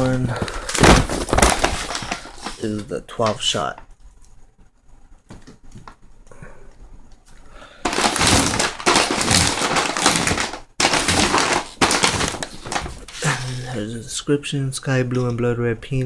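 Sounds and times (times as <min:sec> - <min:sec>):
crackling packaging handling: 0:00.0 - 0:04.3, 0:07.2 - 0:13.8.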